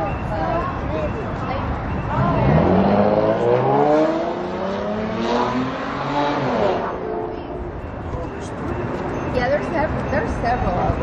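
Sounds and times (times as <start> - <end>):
vehicle engine accelerating: 2.1 - 9.2.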